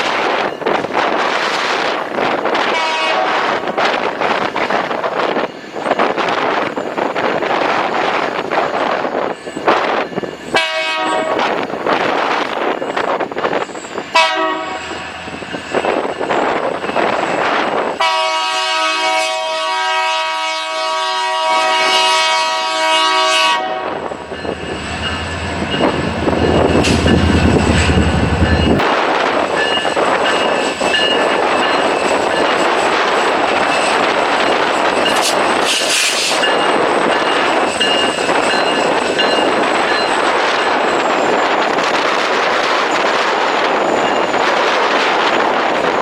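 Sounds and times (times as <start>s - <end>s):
railcars rolling on rails: 0.0s - 46.0s
locomotive horn blast: 2.7s - 3.6s, 10.6s - 11.5s, 14.2s - 15.0s, 18.0s - 24.1s
locomotive rumbling past: 21.2s - 41.4s.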